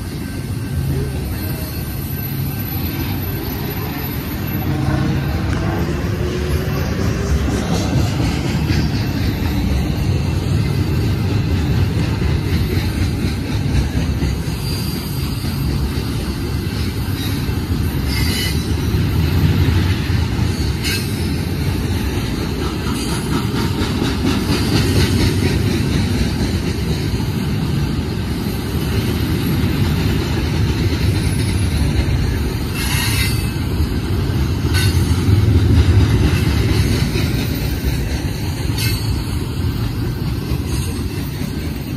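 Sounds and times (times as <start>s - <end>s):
train wheels rumbling on rails: 0.0s - 41.9s
high-pitched wheel squeals: 17.1s - 18.8s.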